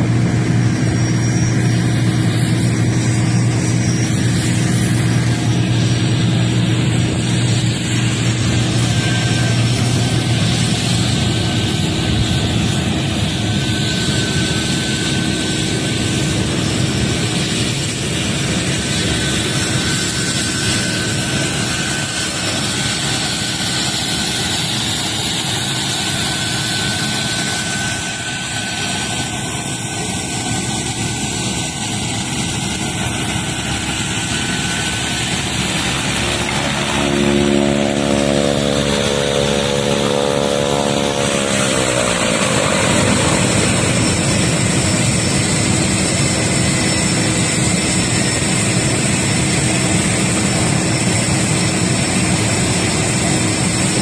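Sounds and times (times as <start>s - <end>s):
turboprop aircraft flying: 0.0s - 54.0s.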